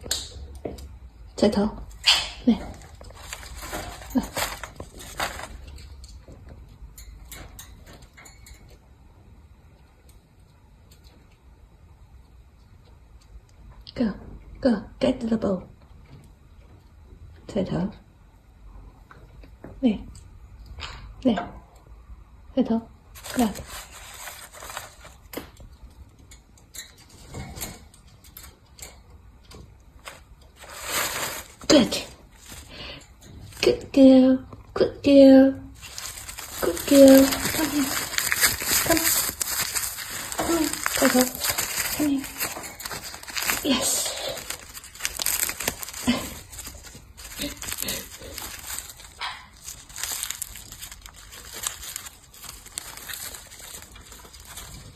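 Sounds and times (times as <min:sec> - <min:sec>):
parrot handling paper: 0:02.6 - 0:06.0, 0:23.1 - 0:25.6, 0:30.0 - 0:33.8, 0:35.8 - 0:54.9.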